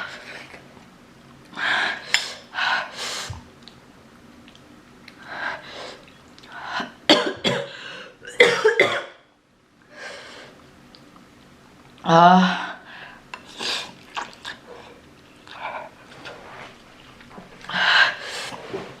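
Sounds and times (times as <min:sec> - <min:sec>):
woman coughing hard: 0:07.1 - 0:09.2.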